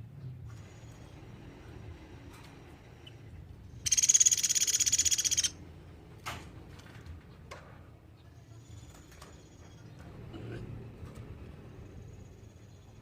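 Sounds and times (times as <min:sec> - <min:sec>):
woodpecker trill: 0:03.8 - 0:05.6.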